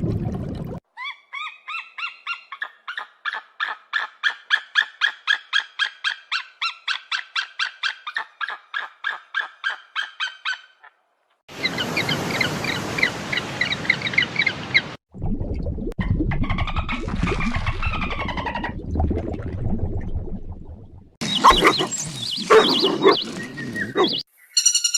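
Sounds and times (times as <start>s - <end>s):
bird honking calls: 21.2s - 24.9s
high chirping calls: 21.2s - 24.9s.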